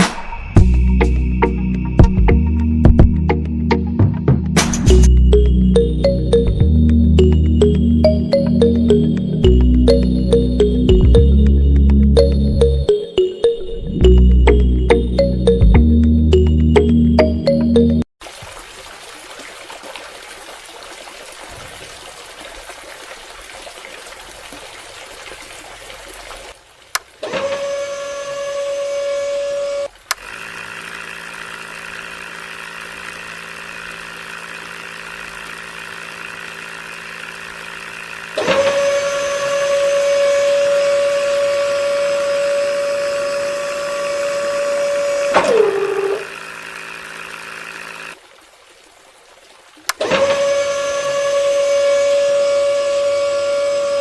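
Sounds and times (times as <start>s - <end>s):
high-pitched toy motor whine: 27.3s - 48.2s, 50.1s - 54.0s
low steady motor hum: 27.8s - 48.6s, 50.0s - 54.0s.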